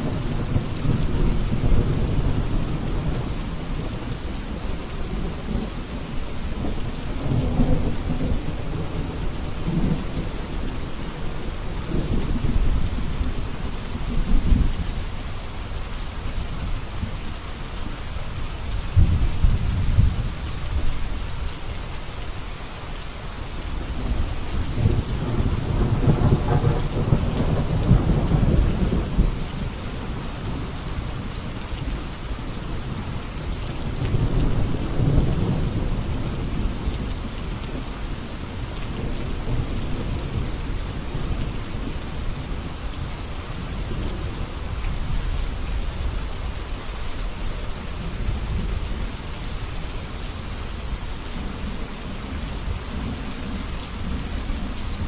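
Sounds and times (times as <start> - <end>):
steady rain falling: 0.0 - 55.0
thunder rumbling: 24.0 - 30.8.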